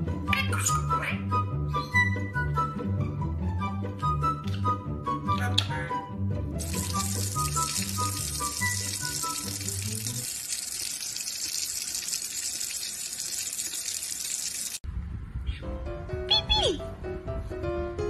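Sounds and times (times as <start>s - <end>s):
background music: 0.0s - 10.3s
running water: 6.6s - 14.8s.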